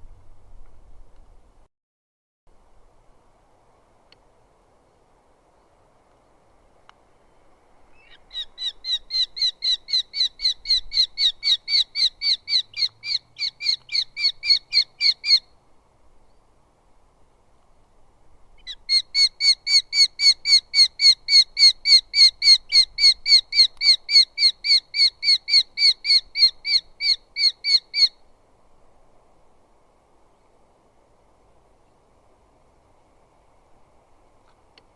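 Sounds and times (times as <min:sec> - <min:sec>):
bird calling sharp notes: 0:08.0 - 0:15.5.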